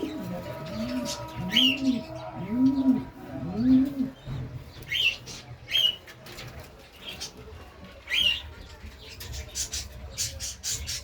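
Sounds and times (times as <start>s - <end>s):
pigeons cooing: 0.0s - 5.9s
small birds chirping: 0.0s - 11.0s.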